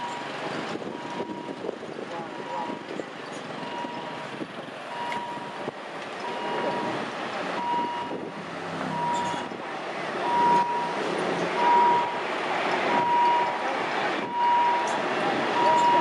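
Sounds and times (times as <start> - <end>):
traffic noise: 0.0 - 16.0
vehicle engine: 0.0 - 16.0
electronic warning beeper: 15.6 - 16.0.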